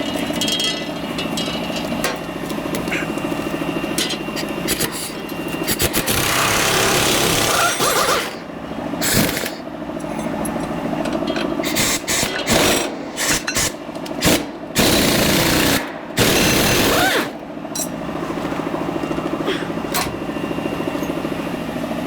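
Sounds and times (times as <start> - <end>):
impact wrench bursts: 4.7 - 8.4, 9.0 - 9.6, 11.6 - 17.4.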